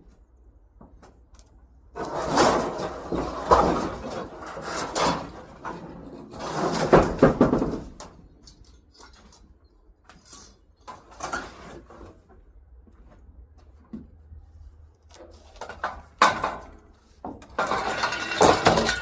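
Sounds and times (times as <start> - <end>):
objects scraping and clattering: 1.9 - 12.4, 15.1 - 19.0.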